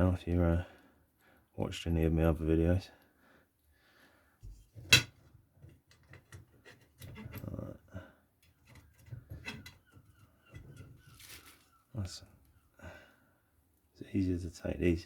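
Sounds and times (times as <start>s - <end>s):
rustle of parts moved: 10.6s - 11.9s.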